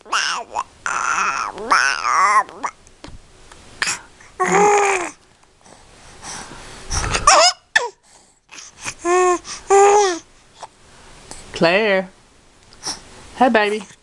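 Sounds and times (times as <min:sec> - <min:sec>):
baby squealing: 0:00.0 - 0:02.7, 0:07.2 - 0:07.9.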